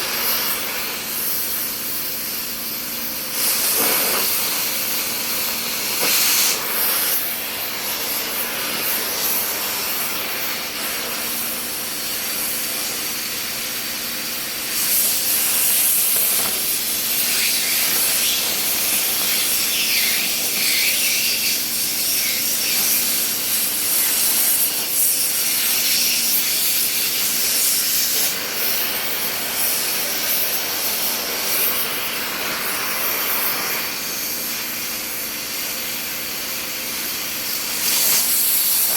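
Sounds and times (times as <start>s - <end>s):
welding arc hissing: 0.0s - 38.9s.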